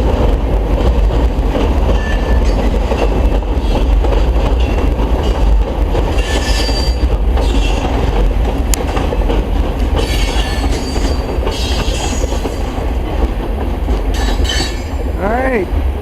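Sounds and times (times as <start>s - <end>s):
train cars rumbling on trestle: 0.0s - 16.0s
train wheels squealing: 6.1s - 7.8s, 10.0s - 12.7s, 14.1s - 15.1s.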